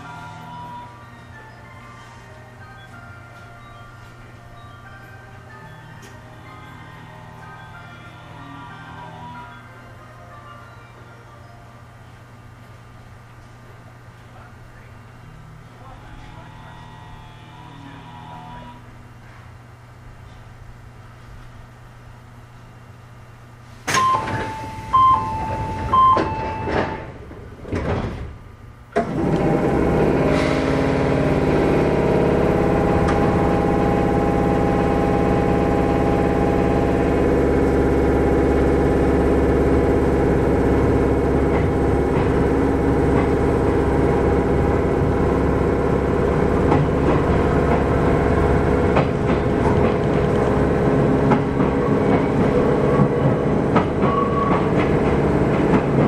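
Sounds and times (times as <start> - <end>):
train equipment humming: 0.0 - 56.0
two-tone chime: 2.6 - 6.8, 24.0 - 27.0
sliding doors closing: 23.6 - 56.0.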